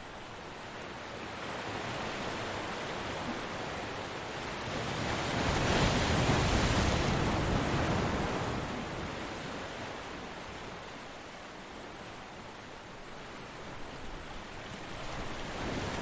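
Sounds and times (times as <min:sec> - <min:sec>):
ocean waves breaking: 0:01.4 - 0:10.9.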